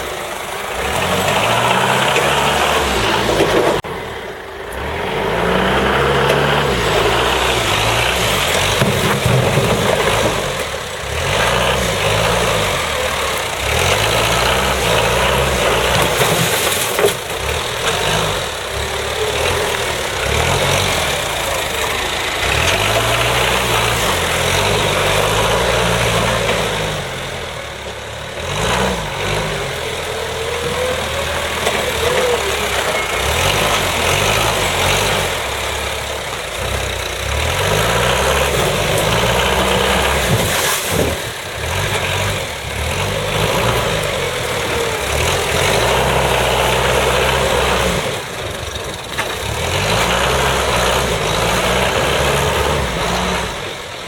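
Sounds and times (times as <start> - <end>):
diesel engine revving: 0.0 - 54.0.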